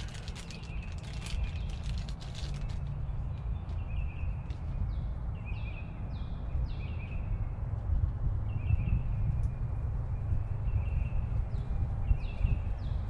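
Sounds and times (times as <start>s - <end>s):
plastic packet crackling: 0.0s - 2.9s
low rumble: 0.0s - 13.0s
songbird singing: 0.0s - 13.0s.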